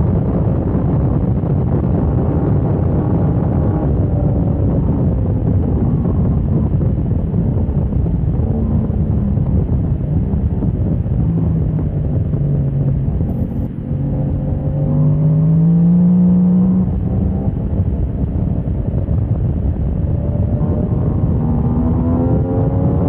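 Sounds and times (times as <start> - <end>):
heavy wind noise: 0.0 - 23.0
motorcycle engine at speed: 0.0 - 23.0.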